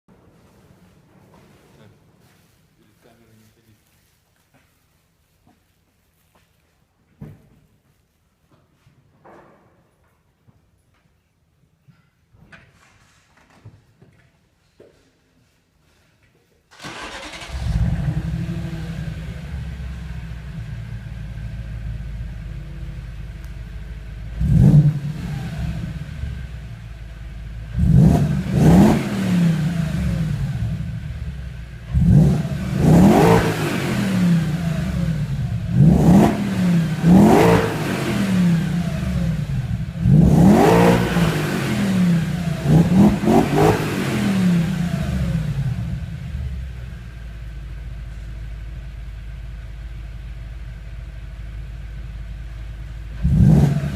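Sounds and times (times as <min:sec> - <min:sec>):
car engine idling and revving: 0:16.8 - 0:53.9.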